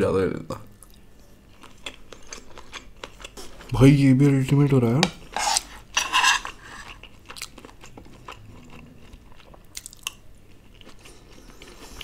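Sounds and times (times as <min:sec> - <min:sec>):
close chewing: 0:06.4 - 0:12.0.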